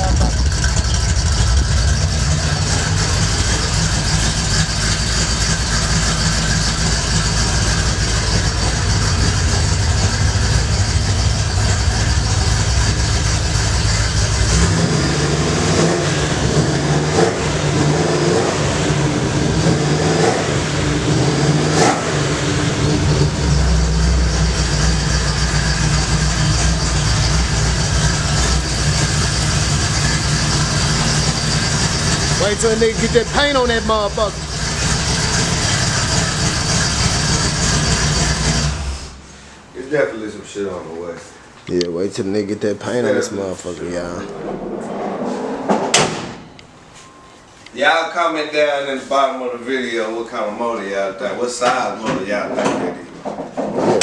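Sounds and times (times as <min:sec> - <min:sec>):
car engine idling and revving: 0:00.0 - 0:39.7, 0:43.6 - 0:47.7.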